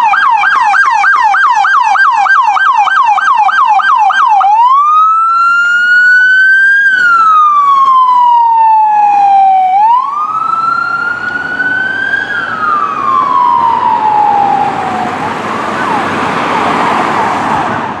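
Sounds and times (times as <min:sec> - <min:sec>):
emergency siren wailing: 0:00.0 - 0:18.0
faint rapid siren yelp: 0:00.0 - 0:18.0
rushing noise: 0:10.4 - 0:18.0.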